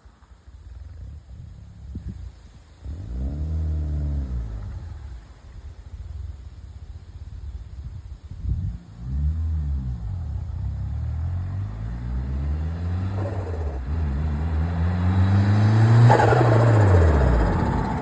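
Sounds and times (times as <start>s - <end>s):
car engine revving: 2.8s - 5.0s, 8.7s - 18.0s
turbo flutter: 13.1s - 14.4s, 16.1s - 18.0s.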